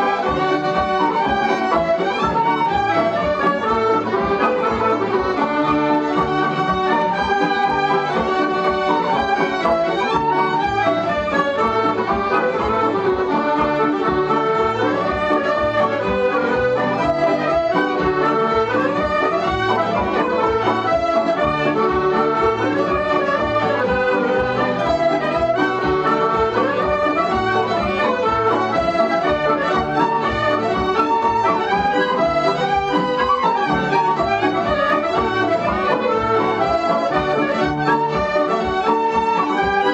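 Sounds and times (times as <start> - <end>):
accordion: 0.0 - 39.9
traditional dance tune: 0.0 - 39.9.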